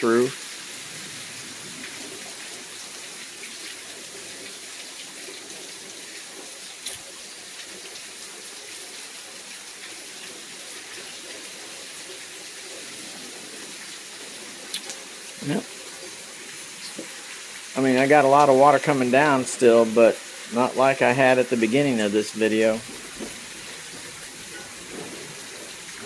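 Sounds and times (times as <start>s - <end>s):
heavy rain falling: 0.0s - 26.0s
water pouring off roof: 0.0s - 26.0s.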